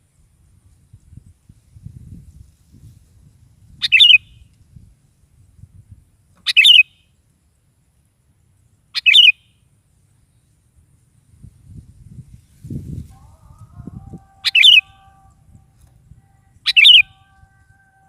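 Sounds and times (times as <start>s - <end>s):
bird chirping: 3.8s - 4.4s, 6.4s - 7.1s, 8.9s - 9.7s, 14.3s - 15.8s, 16.6s - 18.0s.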